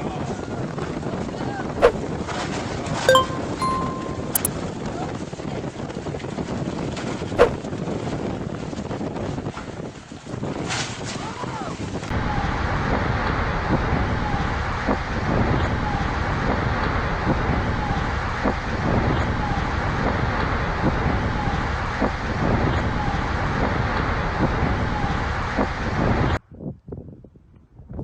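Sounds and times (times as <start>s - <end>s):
short high chirp: 3.1s - 4.5s.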